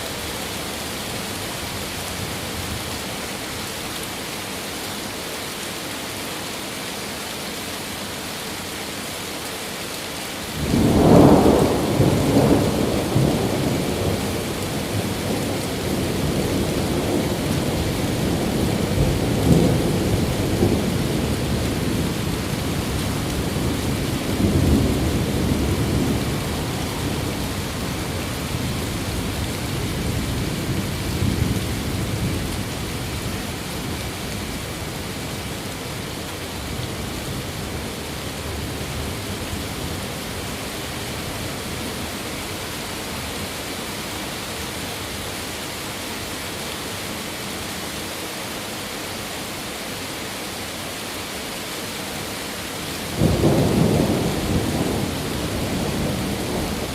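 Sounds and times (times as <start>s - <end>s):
steady rain: 0.0s - 56.9s
rolling thunder: 10.6s - 32.8s, 53.1s - 56.9s.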